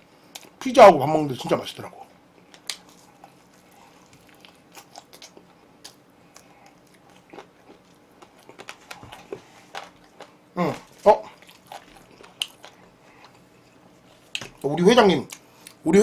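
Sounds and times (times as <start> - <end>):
person chewing food: 2.3 - 14.6.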